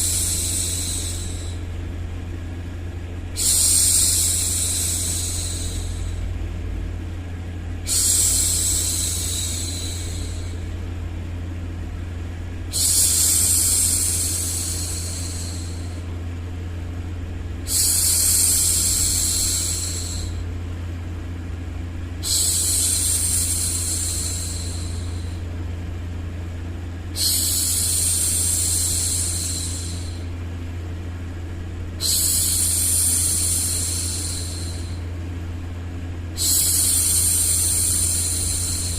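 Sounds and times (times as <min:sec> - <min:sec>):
steady low hum: 0:00.0 - 0:38.9
woman shushing: 0:07.9 - 0:10.6, 0:12.7 - 0:16.0, 0:32.0 - 0:35.0.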